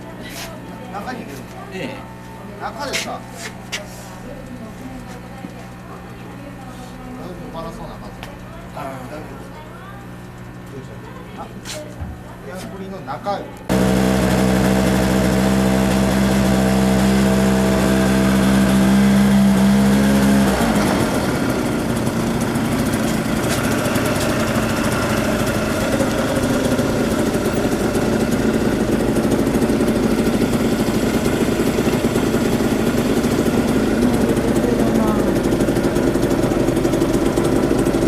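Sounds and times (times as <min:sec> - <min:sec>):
moped engine idling: 0:13.7 - 0:38.0.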